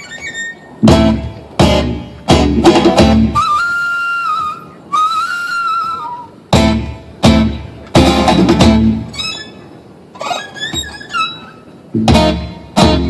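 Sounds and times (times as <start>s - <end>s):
acoustic guitar chords: 0.8s - 3.4s, 6.5s - 9.1s, 12.0s - 13.0s.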